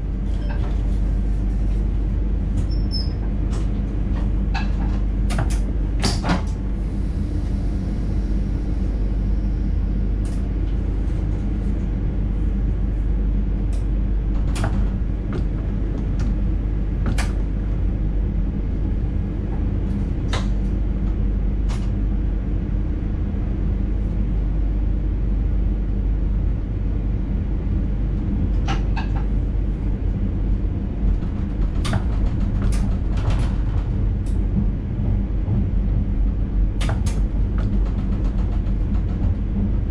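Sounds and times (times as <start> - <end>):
train cab rumble and hum: 0.0 - 39.9
sharp clicks and knocks: 31.1 - 34.7.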